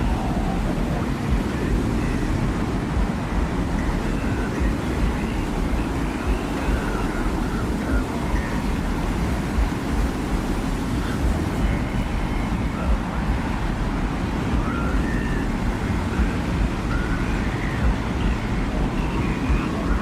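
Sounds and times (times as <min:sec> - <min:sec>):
deep rumbling wind: 0:00.0 - 0:20.0
faint wind whistling: 0:00.0 - 0:20.0.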